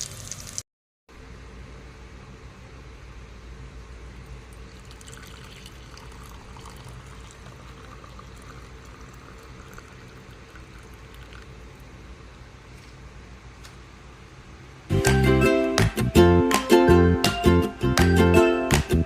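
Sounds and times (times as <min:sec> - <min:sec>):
liquid pouring and trickling: 0:00.0 - 0:00.6, 0:04.5 - 0:11.8.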